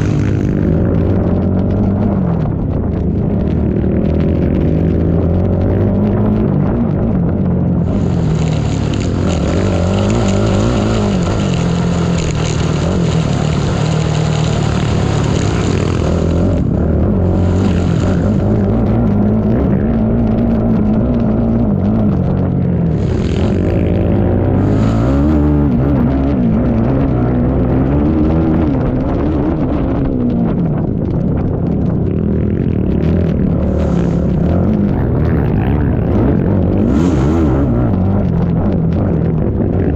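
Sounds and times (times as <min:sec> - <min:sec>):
atv engine revving: 0:00.0 - 0:39.9
high rushing noise: 0:07.8 - 0:19.4, 0:33.2 - 0:38.0.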